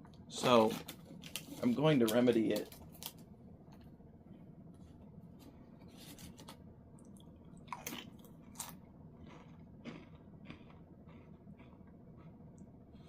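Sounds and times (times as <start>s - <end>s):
chewing and wet mouth sounds: 6.9s - 13.0s.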